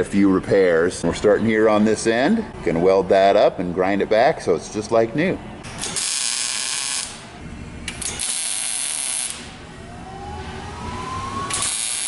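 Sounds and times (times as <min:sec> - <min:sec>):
welding hiss and crackle: 0:05.8 - 0:07.3, 0:08.0 - 0:09.5, 0:11.5 - 0:12.0
faint rising whine: 0:09.5 - 0:11.6.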